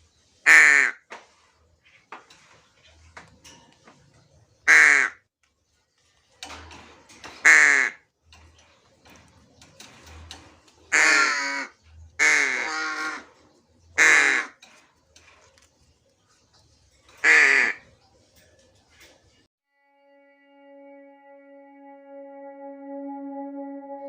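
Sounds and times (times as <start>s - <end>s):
crow cawing: 7.4s - 8.0s, 10.9s - 13.3s, 14.0s - 14.6s, 17.2s - 17.8s.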